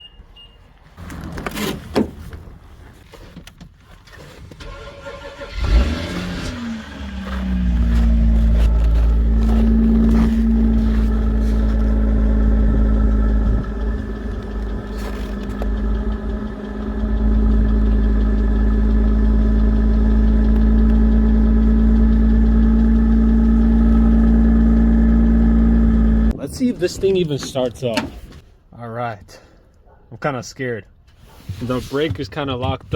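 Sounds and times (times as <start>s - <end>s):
car engine starting and idling: 4.2s - 26.4s
engine clunks: 4.6s - 26.4s.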